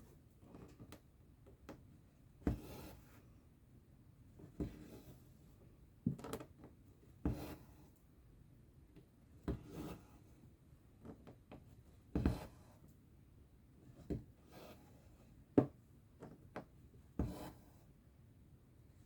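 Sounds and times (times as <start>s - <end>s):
needle tapping through fabric: 11.0s - 12.6s.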